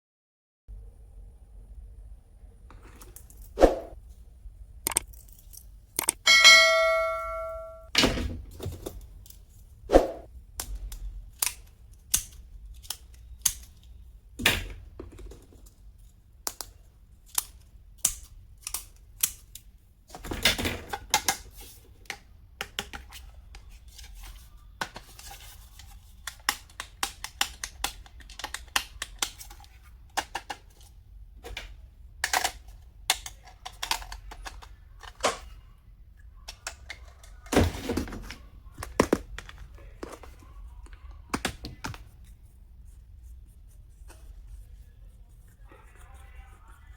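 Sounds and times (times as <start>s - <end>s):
ringing chime: 6.3s - 7.9s.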